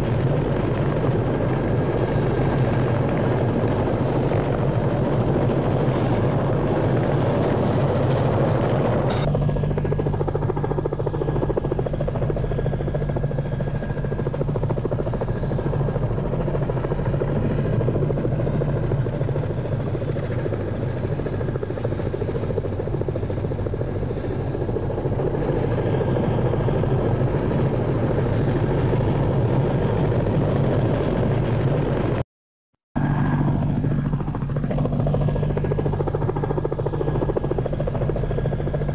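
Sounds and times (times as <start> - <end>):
helicopter rotor chopping: 0.0 - 32.2, 33.0 - 38.9.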